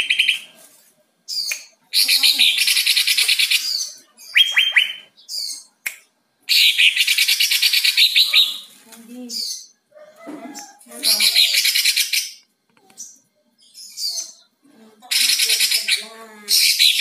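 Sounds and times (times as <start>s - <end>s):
bird singing trilled phrases: 1.3s - 5.8s, 6.5s - 9.8s, 13.0s - 14.5s, 15.1s - 17.0s.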